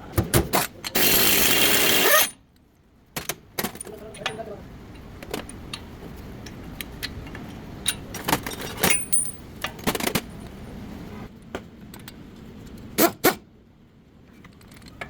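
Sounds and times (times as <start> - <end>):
metal tools clinking: 3.6 - 5.8, 7.8 - 9.5.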